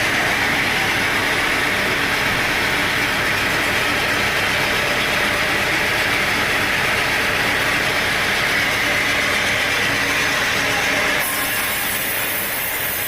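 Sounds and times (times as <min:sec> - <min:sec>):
sawmill machinery drone: 0:00.0 - 0:13.0.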